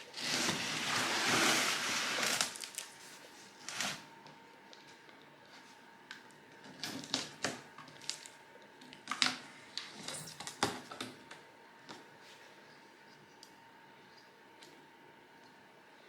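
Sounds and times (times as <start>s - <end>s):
packaging crinkling and scraping: 0.0s - 3.0s.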